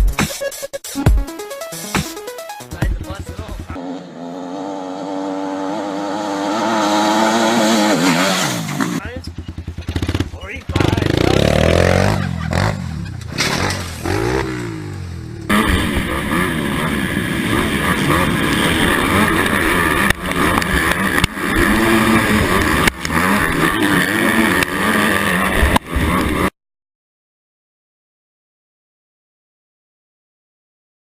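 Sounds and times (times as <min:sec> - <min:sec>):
motocross engine revving: 0:03.0 - 0:26.5.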